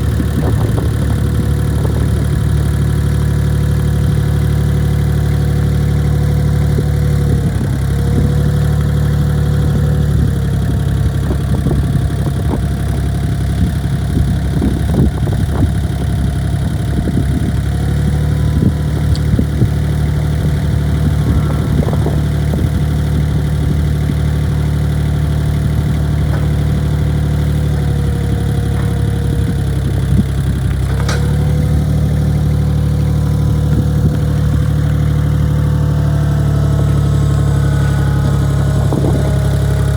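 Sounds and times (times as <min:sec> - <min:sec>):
loader engine running: 0:00.0 - 0:39.9
metal clanks and knocks: 0:18.4 - 0:31.7.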